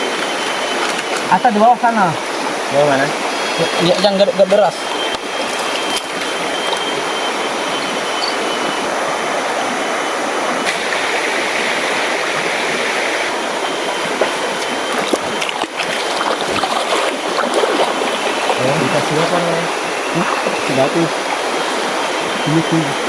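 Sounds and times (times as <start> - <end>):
river rushing over rocks: 0.0 - 23.0
knocks and splashes: 10.6 - 12.7, 14.1 - 21.9.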